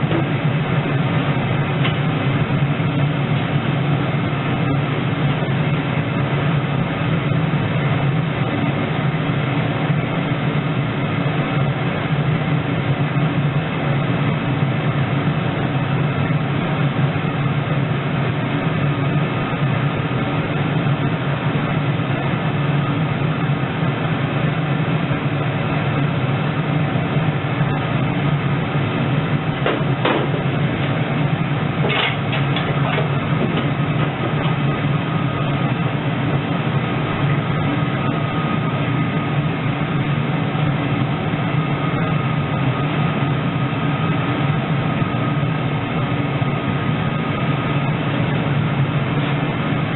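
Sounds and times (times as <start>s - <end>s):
mechanical drone: 0.0s - 49.9s.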